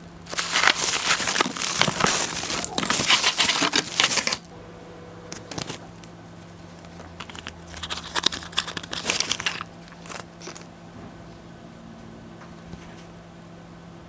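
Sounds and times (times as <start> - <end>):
packaging crinkling: 0.2 - 4.5, 5.3 - 10.8.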